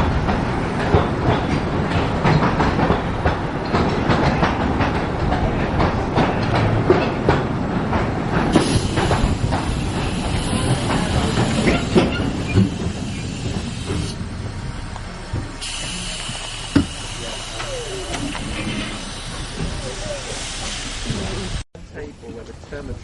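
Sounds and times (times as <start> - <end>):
train wheels clicking on track: 0.0 - 23.0
steam hissing: 8.4 - 14.4, 15.2 - 21.7.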